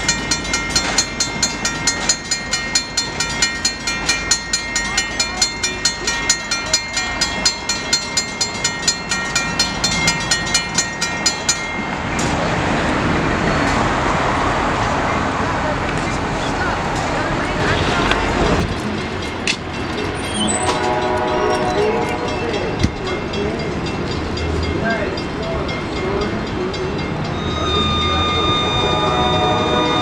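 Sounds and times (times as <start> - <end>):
railroad bell ringing rapidly: 0.0 - 12.6, 17.6 - 30.0
moving train rushing: 0.0 - 30.0.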